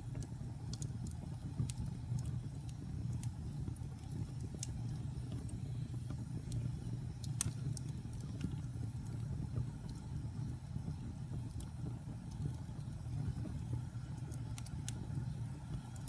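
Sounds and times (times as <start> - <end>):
fire crackling and popping: 0.0 - 16.0
fire low roar: 0.0 - 16.0.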